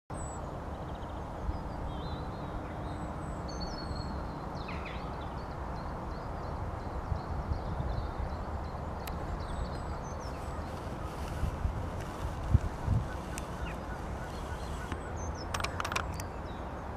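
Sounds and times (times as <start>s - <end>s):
small birds chirping: 0.2s - 16.9s
wind rumbling on microphone: 0.2s - 16.9s
sharp click: 14.9s - 16.3s.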